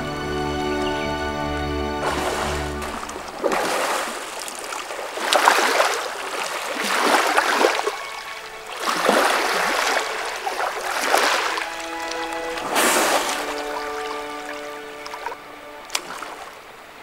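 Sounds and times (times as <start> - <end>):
background music: 0.0 - 3.4, 7.4 - 16.9
mud and water splashing: 0.6 - 17.0.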